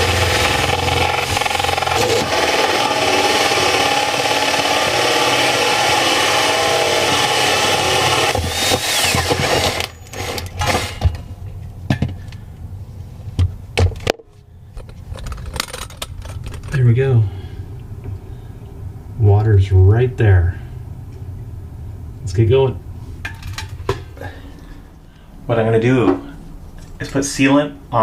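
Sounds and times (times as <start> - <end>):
power drill cutting with hole saw: 0.0 - 11.2
drill knocking and clattering: 0.0 - 11.4.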